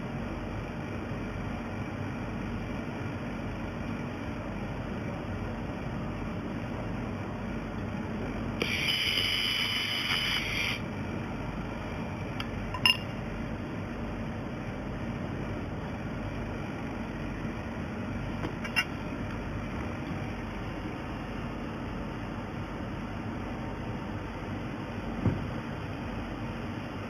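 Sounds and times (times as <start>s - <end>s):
welding machine humming: 7.8s - 12.7s.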